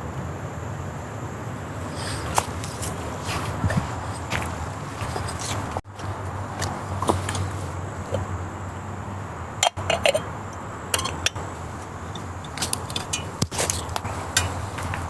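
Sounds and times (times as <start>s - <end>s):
steady low hum: 0.0s - 15.0s
cookware and utensils clinking: 9.6s - 15.0s.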